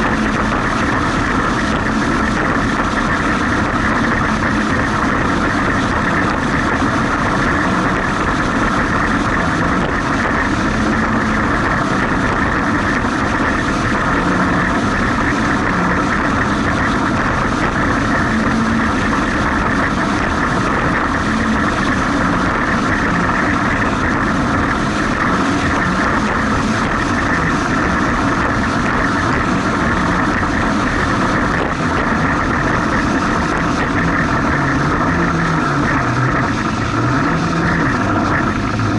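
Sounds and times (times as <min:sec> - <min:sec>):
jet ski engine running: 0:00.0 - 0:38.9.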